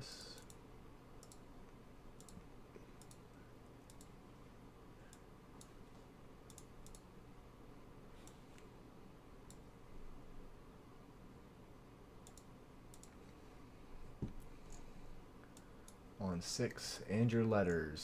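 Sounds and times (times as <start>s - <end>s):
computer mouse clicks: 0.0s - 4.2s, 5.1s - 7.1s, 8.2s - 8.7s, 9.4s - 9.7s, 12.2s - 13.4s, 14.3s - 16.0s
low steady hum: 0.0s - 18.0s.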